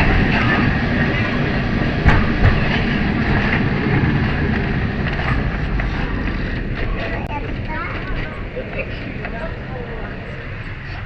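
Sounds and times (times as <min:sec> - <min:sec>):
streetcar rumbling on rails: 0:00.0 - 0:11.0
sharp knocks: 0:02.0 - 0:03.6.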